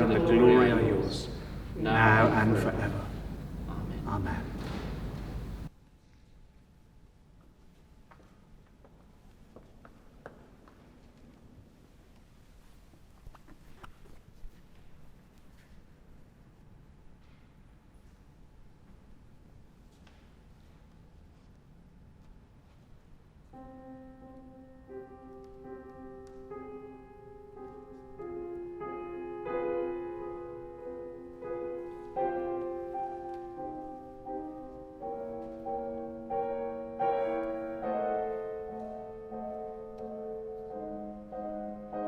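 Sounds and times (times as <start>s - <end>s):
slow keyboard music: 0.0s - 5.7s, 23.5s - 42.0s.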